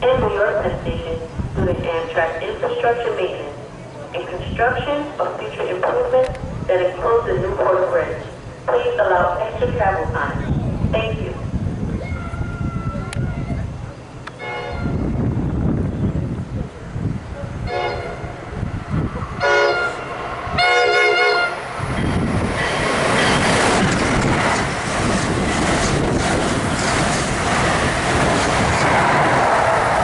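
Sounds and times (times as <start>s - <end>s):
train horn blasts: 14.4s - 15.2s, 17.6s - 18.4s, 19.4s - 21.6s
train wheels clattering over rails: 21.8s - 30.0s.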